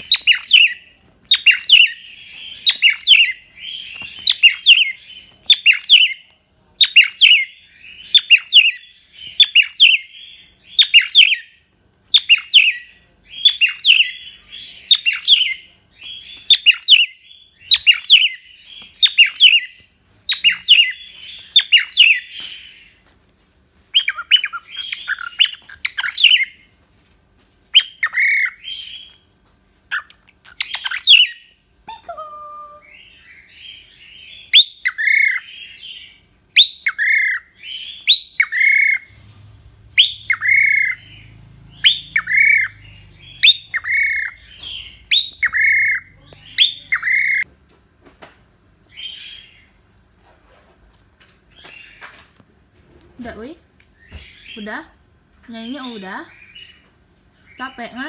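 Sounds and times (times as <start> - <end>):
cockatiel chirping: 0.0 - 23.0, 23.9 - 26.6, 27.8 - 29.2, 29.9 - 39.0, 39.9 - 47.5.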